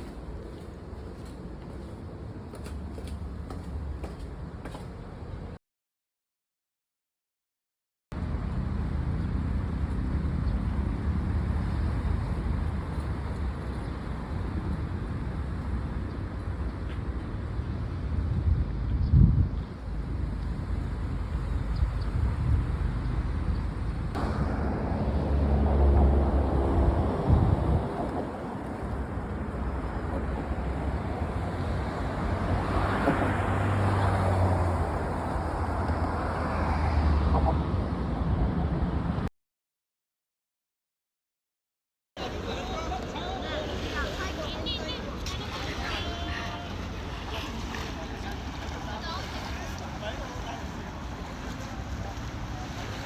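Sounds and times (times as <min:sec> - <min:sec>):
broad rushing noise: 0:19.7 - 0:35.7
vehicle engine rumbling: 0:19.7 - 0:36.1.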